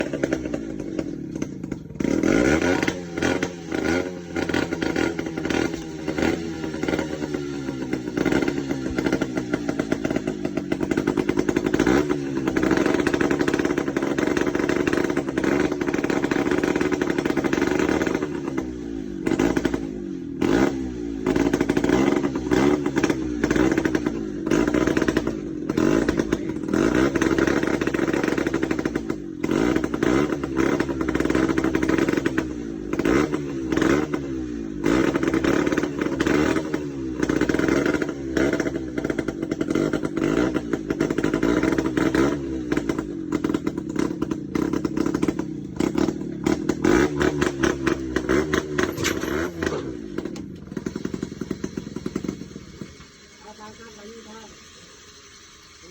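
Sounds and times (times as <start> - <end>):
truck engine revving: 0.0 - 54.2
rattling clatter: 43.4 - 53.0.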